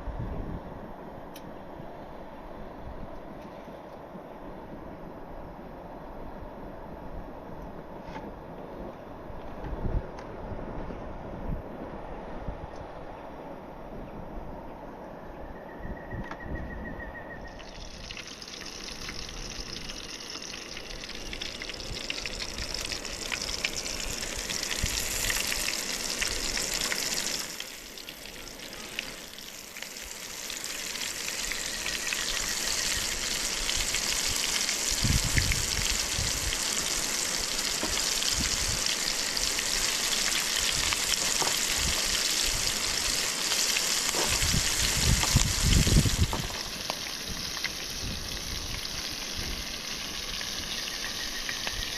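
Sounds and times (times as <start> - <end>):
fish frying in oil: 17.5 - 51.9.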